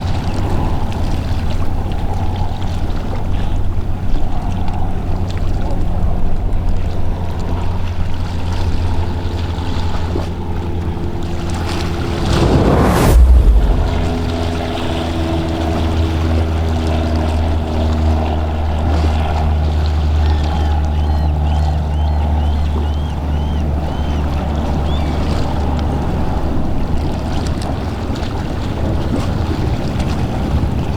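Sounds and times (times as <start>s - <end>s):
boat engines droning: 0.0s - 12.3s, 14.0s - 30.9s
water wash: 7.2s - 22.4s
wind noise: 11.5s - 15.2s.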